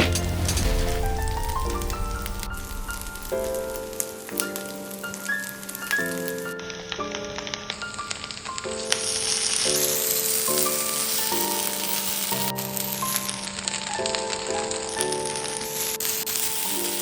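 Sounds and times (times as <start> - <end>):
background music: 0.0 - 17.0
cutlets sizzling in frying: 15.7 - 17.0.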